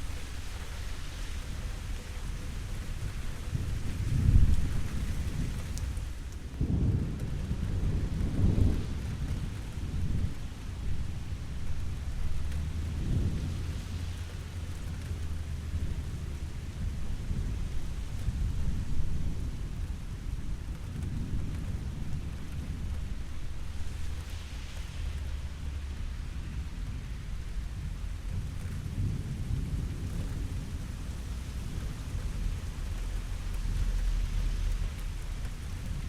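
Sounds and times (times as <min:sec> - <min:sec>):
rain hiss: 0:00.0 - 0:36.0
rolling thunder: 0:03.6 - 0:36.0.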